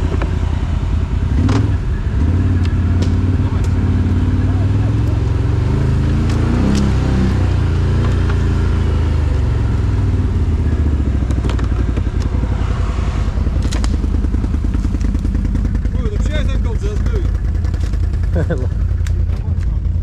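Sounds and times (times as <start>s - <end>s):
engine running at low revs: 0.0s - 20.0s
sharp clicks and knocks: 11.2s - 12.4s, 13.6s - 14.1s.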